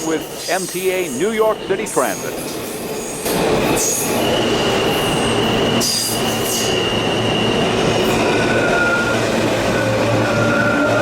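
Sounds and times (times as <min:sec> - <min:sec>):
subway train wheel noise: 0:00.0 - 0:11.0
high wheel squeal: 0:03.0 - 0:11.0.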